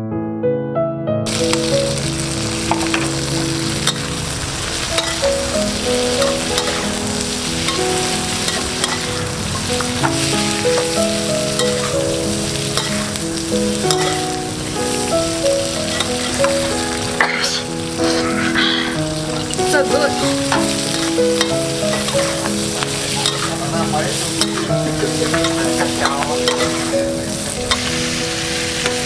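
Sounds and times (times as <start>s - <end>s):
piano background music: 0.0s - 29.0s
chicken sizzling in hot oil: 1.3s - 29.0s
spatula scraping a pan: 2.6s - 15.0s, 15.6s - 29.0s.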